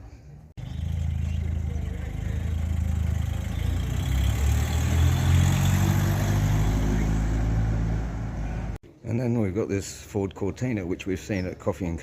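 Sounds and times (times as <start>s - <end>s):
car engine revving: 0.6s - 8.8s.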